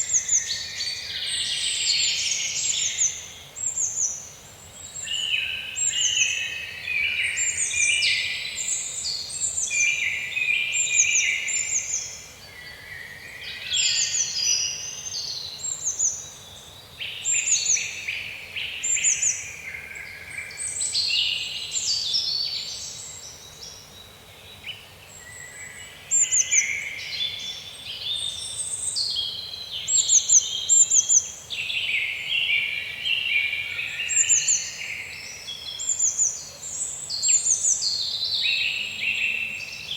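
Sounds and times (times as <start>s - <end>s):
songbirds chirping and singing: 18.9s - 39.9s.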